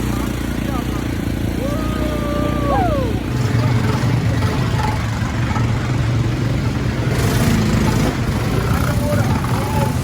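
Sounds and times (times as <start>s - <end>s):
quad bike engine rumbling: 0.0s - 10.0s
person calling out: 1.6s - 3.3s.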